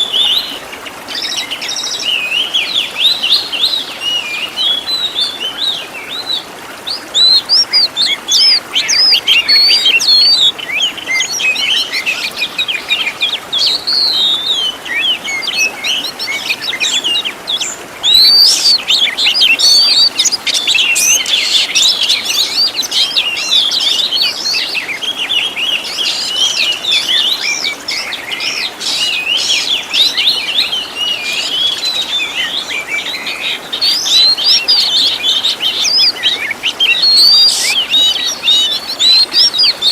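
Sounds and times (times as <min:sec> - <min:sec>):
bird song chirps and whistles: 0:00.0 - 0:39.9.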